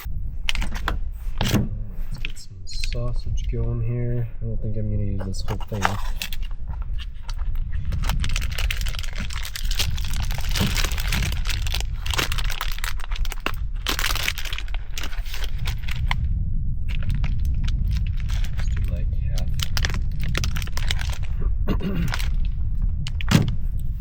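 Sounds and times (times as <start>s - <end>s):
low rumble: 0.0s - 24.0s
plastic packaging crinkling: 5.2s - 16.2s, 16.9s - 21.4s, 22.0s - 22.5s
campfire crackling and popping: 6.3s - 23.4s.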